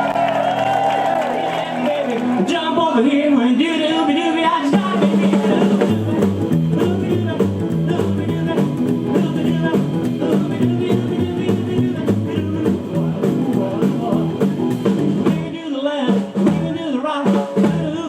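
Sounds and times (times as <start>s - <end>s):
live rockabilly band playing: 0.0s - 18.0s
bass line: 4.4s - 18.0s.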